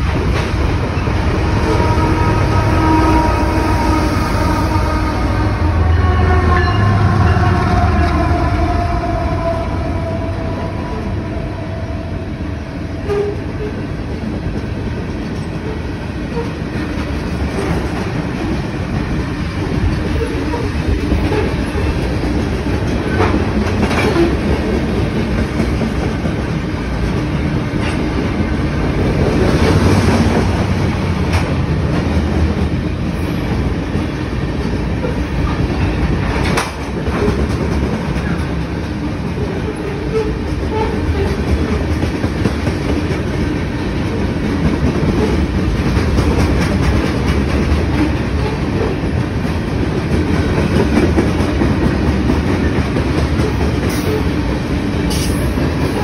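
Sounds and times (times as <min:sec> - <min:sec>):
train wheels rumbling on rail: 0:00.0 - 0:56.0
locomotive tone sliding down: 0:00.4 - 0:13.8.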